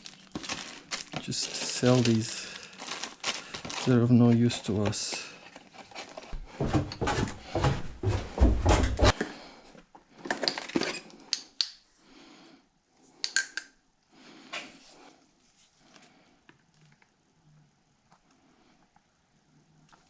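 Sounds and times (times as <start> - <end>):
packaging rustling: 0.0 - 7.1.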